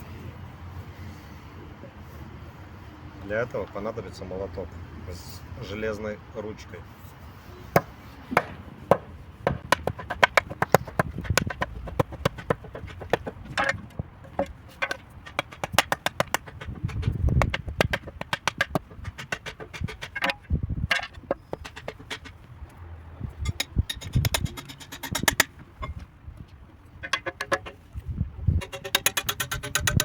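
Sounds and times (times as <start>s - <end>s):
dull thud: 7.8s - 22.1s
hammer knocking on metal shovel: 7.8s - 22.3s.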